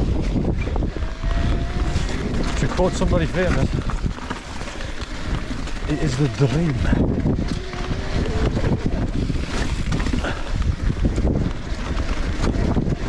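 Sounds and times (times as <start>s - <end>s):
mountain bike rumbling and rattling: 0.0s - 13.0s
wind buffeting microphone: 0.0s - 13.0s.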